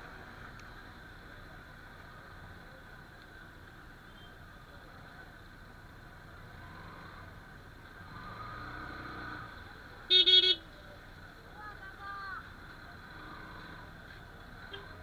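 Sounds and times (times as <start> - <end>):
traffic hum: 0.0 - 15.0
vehicle horn: 10.1 - 10.6.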